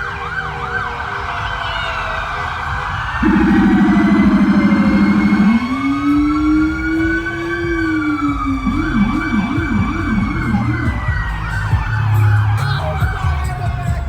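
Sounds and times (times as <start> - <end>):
fire truck siren wailing: 0.0 - 14.0
siren yelp: 0.0 - 14.0
steady siren tone: 3.1 - 14.0
low steady drone: 3.2 - 14.0.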